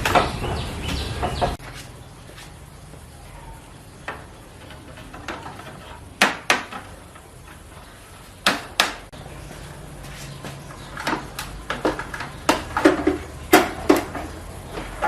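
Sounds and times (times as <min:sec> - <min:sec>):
hard objects knocking: 0:04.0 - 0:09.2, 0:10.4 - 0:15.0.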